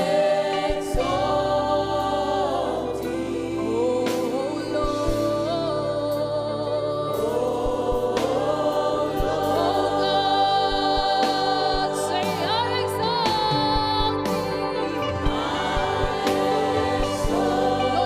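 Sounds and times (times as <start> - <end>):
people singing gospel: 0.0 - 18.0.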